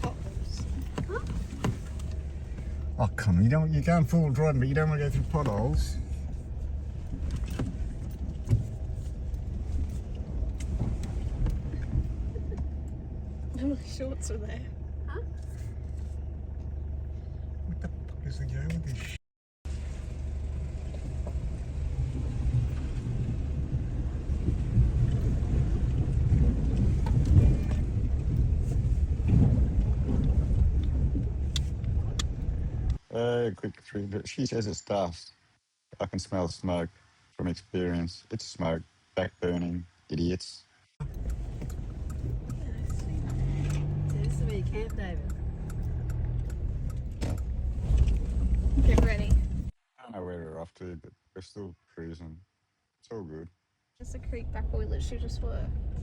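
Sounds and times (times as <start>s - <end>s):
vehicle rumble on dirt track: 0.0s - 33.1s, 41.0s - 49.8s, 54.0s - 56.0s.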